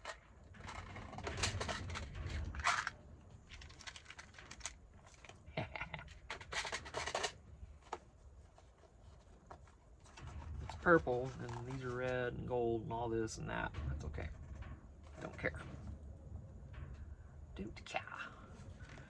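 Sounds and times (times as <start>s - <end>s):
small items clicking and clattering: 0.0s - 12.3s
packets rustling: 0.7s - 5.4s.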